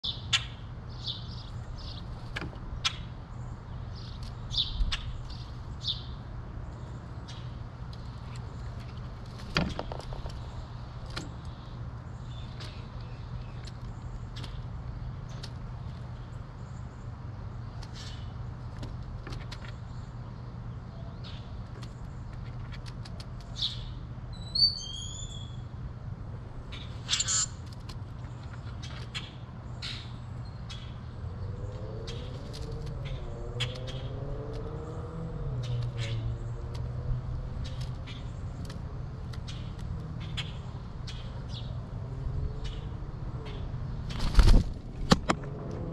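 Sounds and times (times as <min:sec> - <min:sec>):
birds calling: 0:00.0 - 0:25.8, 0:26.4 - 0:45.9
songbirds chirping: 0:00.0 - 0:45.9.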